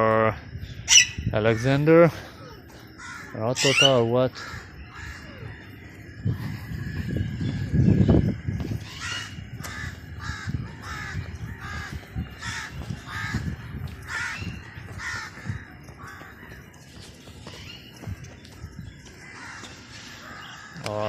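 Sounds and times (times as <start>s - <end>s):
bird cawing: 0.9s - 7.4s, 8.3s - 16.6s, 19.0s - 21.0s.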